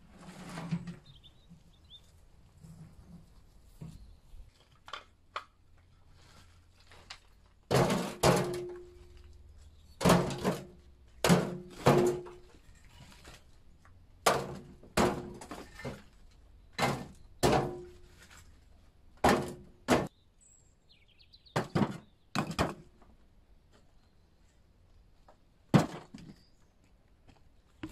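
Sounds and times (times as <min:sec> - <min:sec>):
heavy thuds on brickwork: 0:19.2 - 0:20.1.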